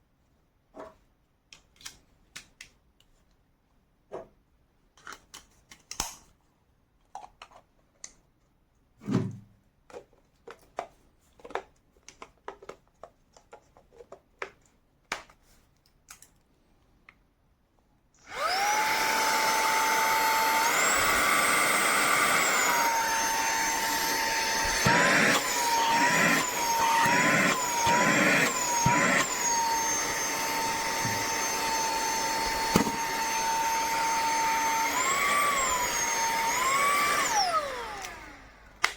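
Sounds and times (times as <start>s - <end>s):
handheld vacuum motor whining: 18.2s - 38.9s.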